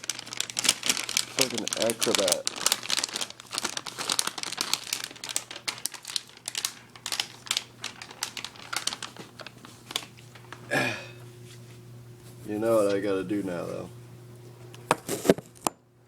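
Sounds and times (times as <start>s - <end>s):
packaging crinkling: 0.0s - 10.7s.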